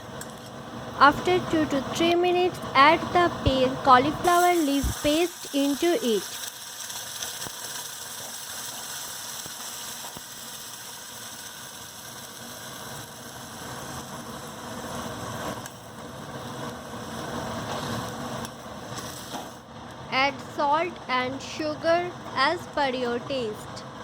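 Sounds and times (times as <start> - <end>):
faint hum: 0.0 - 6.4, 19.6 - 24.0
paste sizzling in oil: 4.2 - 19.6.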